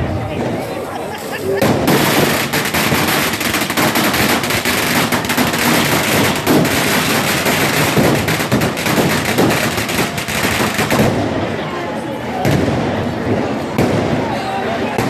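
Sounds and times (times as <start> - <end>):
firecrackers banging: 0.0 - 15.0.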